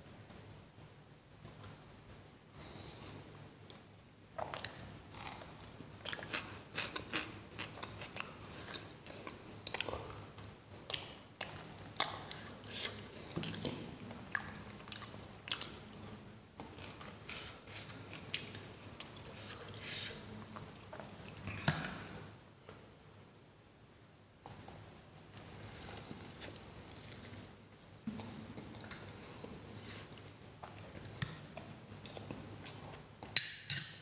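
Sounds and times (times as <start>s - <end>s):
chewing with crunches: 4.4s - 22.2s, 25.3s - 33.1s.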